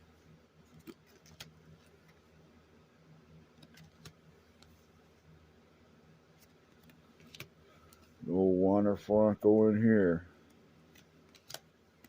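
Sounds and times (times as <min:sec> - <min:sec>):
faint steady hum: 0:00.0 - 0:12.0
cards clicking and tapping: 0:00.7 - 0:02.2, 0:03.6 - 0:04.7, 0:06.4 - 0:08.1, 0:10.9 - 0:12.0.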